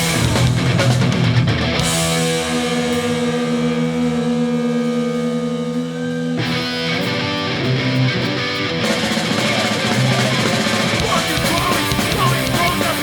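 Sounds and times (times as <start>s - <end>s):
punk band playing live: 0.0s - 13.0s.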